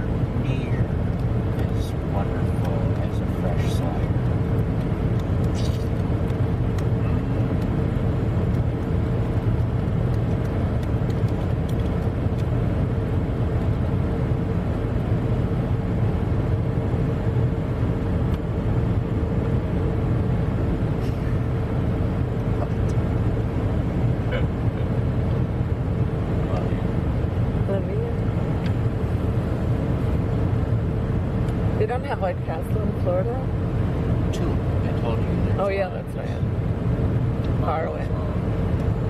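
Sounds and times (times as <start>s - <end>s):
car engine rumble inside cabin: 0.0s - 39.0s.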